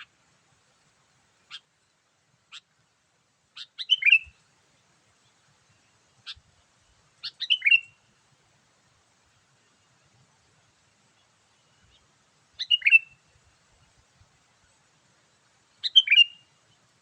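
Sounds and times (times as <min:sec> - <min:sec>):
bird chirping: 0:01.4 - 0:02.7, 0:03.5 - 0:04.4, 0:07.2 - 0:08.0, 0:11.1 - 0:13.2, 0:15.6 - 0:16.9.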